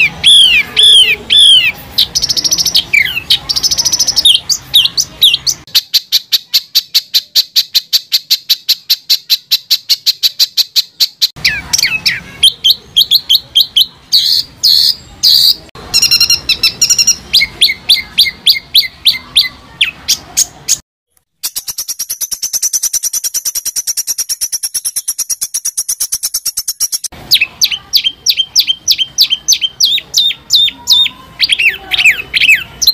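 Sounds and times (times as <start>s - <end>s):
songbird singing: 0.0s - 20.8s, 21.4s - 32.9s.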